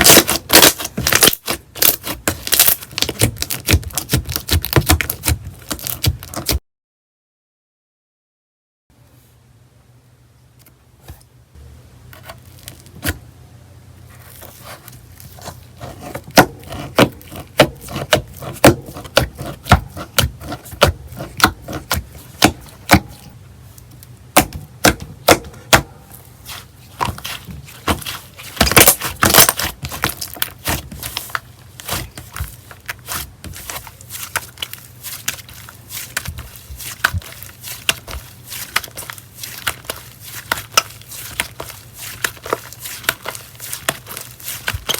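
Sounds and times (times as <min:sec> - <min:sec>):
slime crackling: 0:00.0 - 0:06.6, 0:26.1 - 0:44.9.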